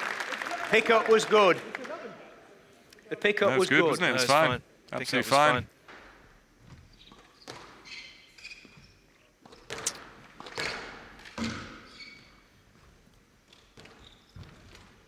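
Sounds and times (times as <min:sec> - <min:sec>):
shoes squeaking on court floor: 0:03.6 - 0:15.0.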